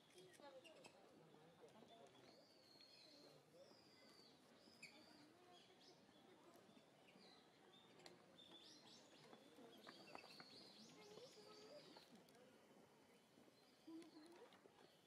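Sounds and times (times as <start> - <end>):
faint high bird chirps: 2.3 - 6.0.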